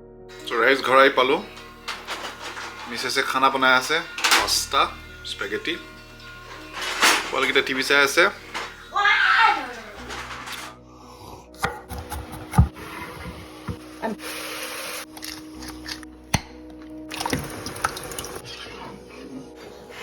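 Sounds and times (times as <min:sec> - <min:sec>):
pots and utensils clattering: 0:00.3 - 0:10.8
running water: 0:00.3 - 0:10.8, 0:17.1 - 0:18.6.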